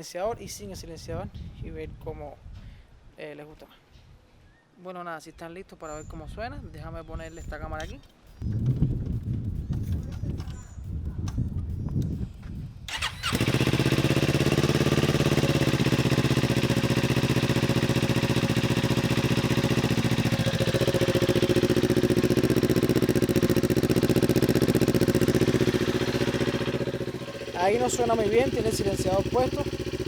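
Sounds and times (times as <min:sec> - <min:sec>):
motorcycle engine starting and idling: 0:12.9 - 0:30.0.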